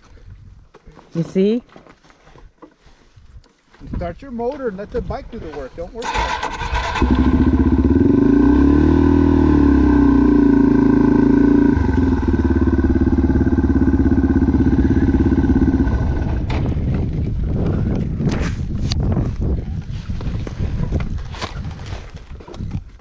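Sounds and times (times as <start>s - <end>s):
dirt bike engine revving: 6.0s - 16.8s.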